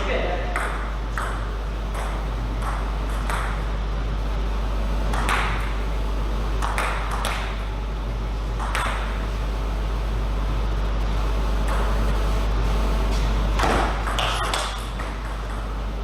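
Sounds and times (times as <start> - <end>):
steady low hum: 0.0 - 16.0
table tennis ball hits: 0.5 - 3.6.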